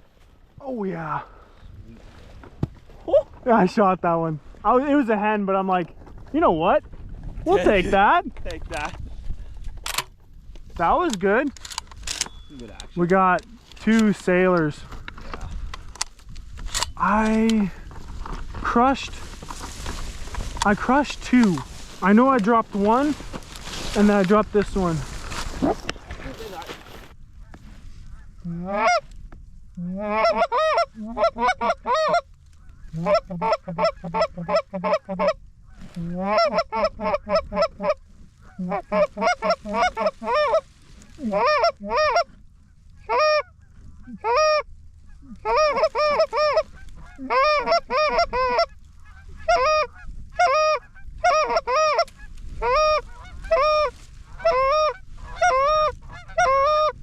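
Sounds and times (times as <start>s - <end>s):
goose honking: 27.4s - 29.1s, 29.8s - 57.0s.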